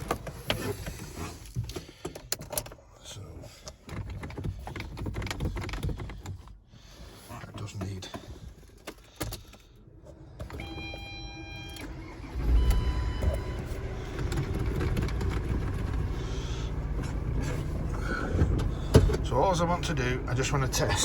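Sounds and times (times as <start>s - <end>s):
ignition clicks: 0.0s - 2.8s, 10.4s - 19.8s
van engine starting and idling: 0.0s - 21.0s.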